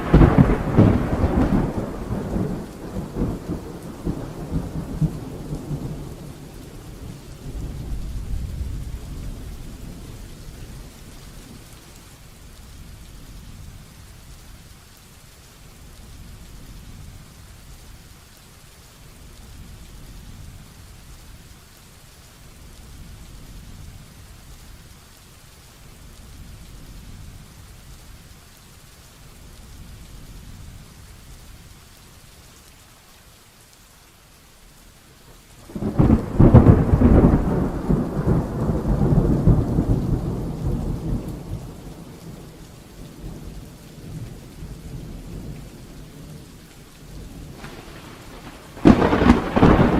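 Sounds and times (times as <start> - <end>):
loud thunderclap: 0.0 - 6.2, 35.7 - 42.3, 47.3 - 49.9
low thunder rumbling: 0.0 - 14.4, 35.6 - 49.9
heavy rain: 0.0 - 49.9.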